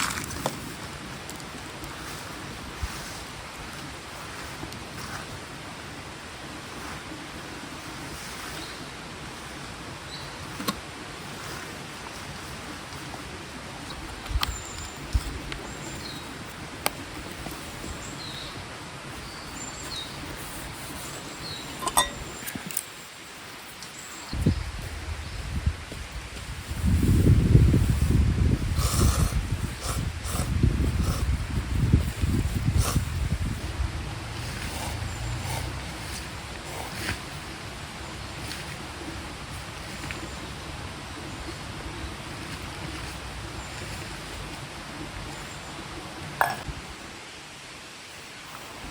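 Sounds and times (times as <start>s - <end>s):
stream rushing: 0.0s - 25.1s, 27.9s - 48.9s
small birds chirping: 13.8s - 22.7s, 34.5s - 44.6s.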